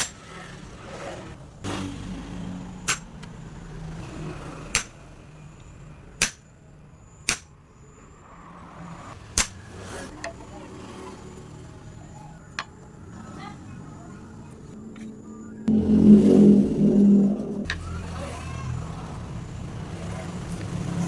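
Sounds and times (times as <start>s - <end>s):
low steady hum: 14.4s - 18.2s.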